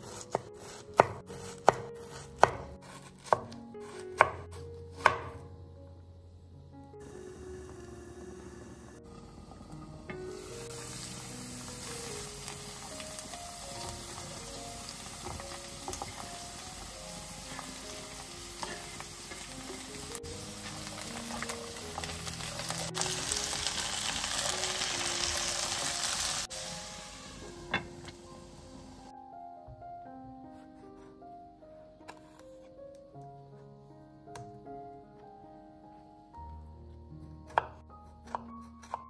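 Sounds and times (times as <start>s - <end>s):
soft background music: 0.0s - 39.0s
potatoes sizzling in a pan: 7.0s - 29.0s
spoon stirring in a pan: 17.5s - 19.9s.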